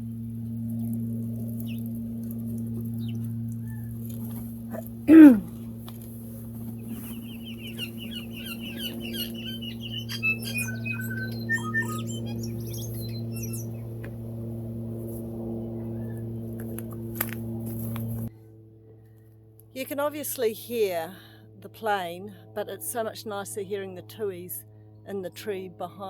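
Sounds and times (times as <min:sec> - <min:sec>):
birds singing: 0:00.0 - 0:18.3
small plane engine droning: 0:00.0 - 0:26.0.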